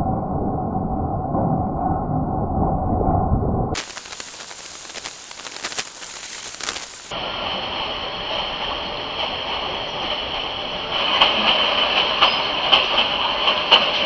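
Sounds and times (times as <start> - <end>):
train rushing hiss: 3.8 - 14.0
train carriage running noise: 6.7 - 14.0.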